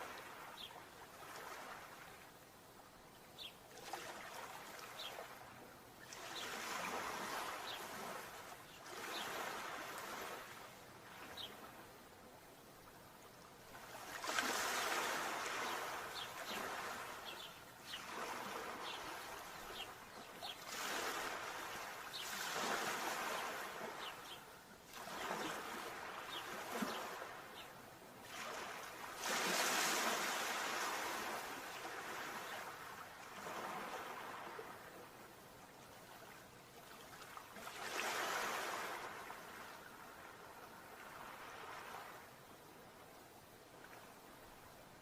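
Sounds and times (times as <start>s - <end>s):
sea waves surging: 6.0s - 11.8s, 13.6s - 27.6s, 28.2s - 35.2s, 37.5s - 42.3s.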